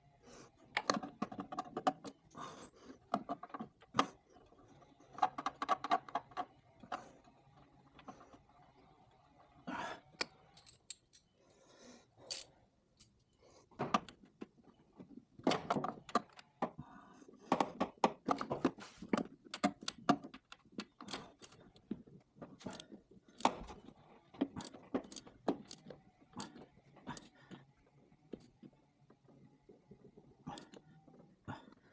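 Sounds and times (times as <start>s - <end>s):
metal tools clinking and clattering: 10.4s - 11.3s.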